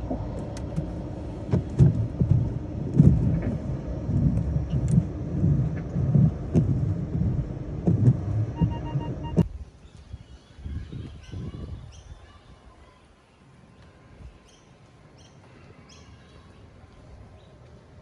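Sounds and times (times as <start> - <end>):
car wash machinery rumble: 0.0 - 9.4
heavy thumps: 0.0 - 9.4.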